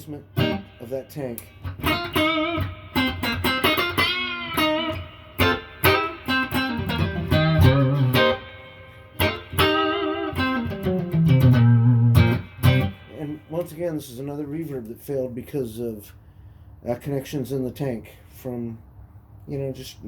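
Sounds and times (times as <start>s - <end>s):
electric guitar with spring reverb: 0.0s - 13.7s.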